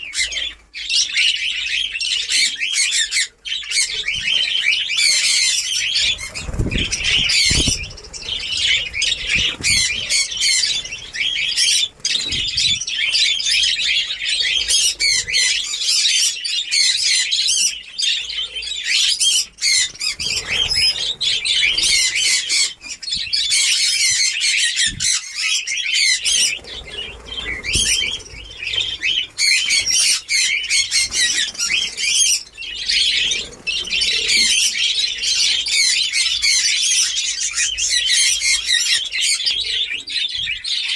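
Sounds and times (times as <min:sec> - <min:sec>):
budgerigars chattering and squawking: 0:00.0 - 0:40.9.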